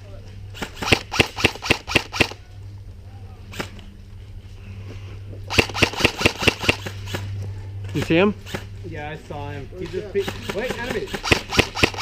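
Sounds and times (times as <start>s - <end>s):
steady low hum: 0.0s - 12.0s
airsoft gun shots: 0.6s - 2.4s, 5.5s - 7.3s, 10.2s - 12.0s.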